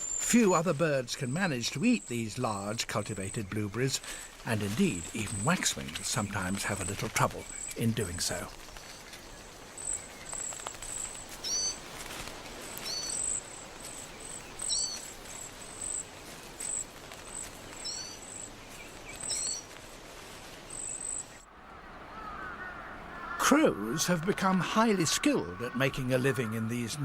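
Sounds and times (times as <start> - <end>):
steady background hiss: 0.0 - 27.0
high thin bird calls: 6.7 - 12.0, 12.8 - 19.7.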